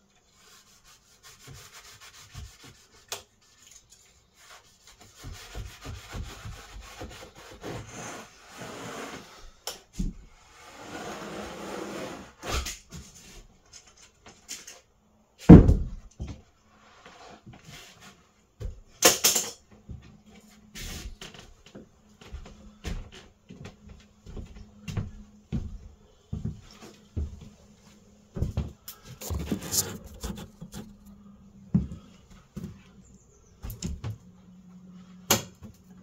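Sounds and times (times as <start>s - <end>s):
knife blade scraping through wool: 29.2s - 30.9s.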